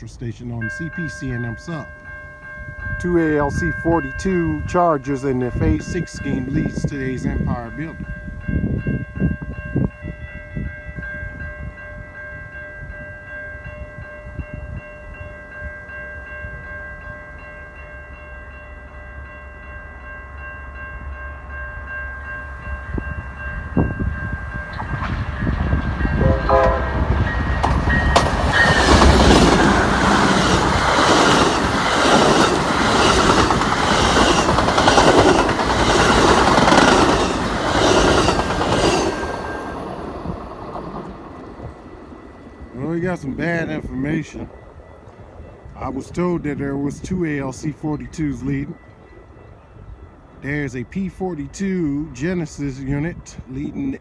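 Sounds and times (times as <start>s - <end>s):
crossing warning bells ringing: 0.0s - 53.5s
train roar: 0.8s - 9.0s, 14.2s - 52.2s
wheels clattering over rail joints: 24.6s - 43.5s
train horn toot: 26.0s - 27.6s.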